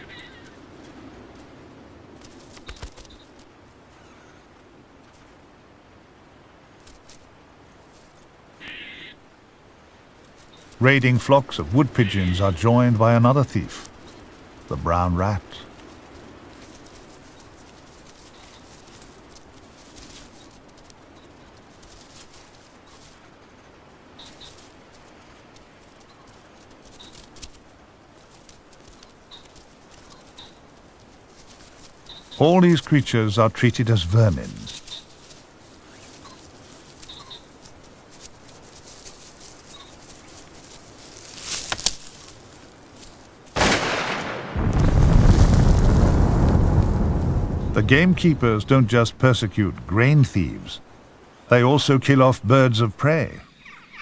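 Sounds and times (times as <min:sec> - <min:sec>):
faint bird calls: 0:00.0 - 0:01.1, 0:02.6 - 0:04.6, 0:08.6 - 0:09.3, 0:16.6 - 0:27.7, 0:28.3 - 0:32.8, 0:34.6 - 0:42.8, 0:53.4 - 0:54.0
rustling: 0:00.0 - 0:05.8, 0:06.5 - 0:52.5
pigeons pecking clicks: 0:02.2 - 0:03.4, 0:24.2 - 0:33.1
shotgun shots: 0:43.6 - 0:44.9
heavy rushing noise: 0:43.6 - 0:49.8.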